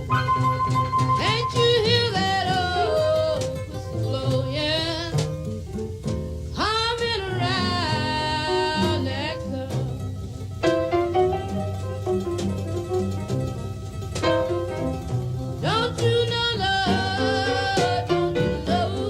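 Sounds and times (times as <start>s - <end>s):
acoustic guitar: 0.0s - 19.0s
bass: 0.0s - 19.0s
drums: 0.0s - 19.0s
piano: 0.0s - 19.0s
woman singing blues: 0.3s - 5.6s, 6.5s - 10.2s, 15.6s - 19.0s.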